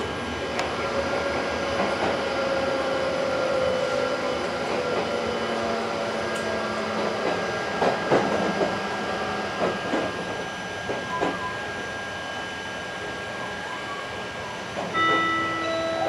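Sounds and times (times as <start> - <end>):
train running rumble: 0.0 - 16.0
faint steady high tone: 13.4 - 16.0.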